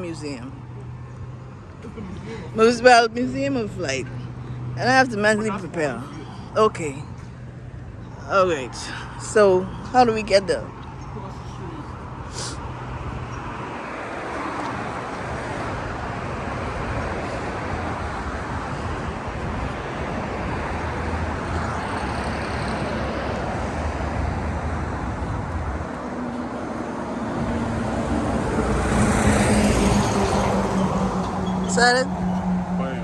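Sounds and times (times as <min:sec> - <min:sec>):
car engine: 0:10.5 - 0:33.0
tyre noise on road: 0:10.8 - 0:33.0.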